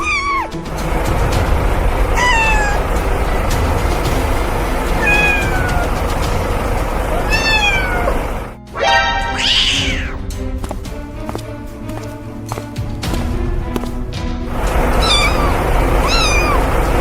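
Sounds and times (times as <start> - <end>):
cat meowing: 0.0 - 0.6, 2.1 - 2.9, 4.9 - 10.2, 14.8 - 17.0
background music: 0.0 - 17.0.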